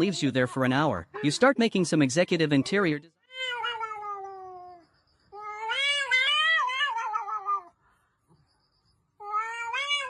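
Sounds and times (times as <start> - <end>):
cat meowing: 3.2 - 4.8, 5.4 - 7.8, 9.2 - 10.0.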